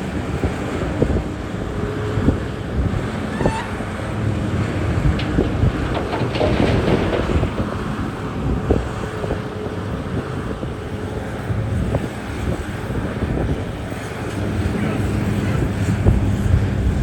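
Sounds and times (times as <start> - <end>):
diesel machinery running: 0.0 - 17.0
knocks and clatter: 3.3 - 9.8.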